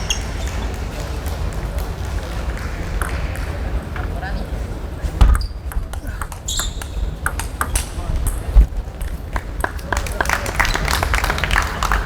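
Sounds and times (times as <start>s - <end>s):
table tennis balls clicking: 0.0s - 4.2s, 5.2s - 9.6s
background chatter: 0.0s - 12.0s.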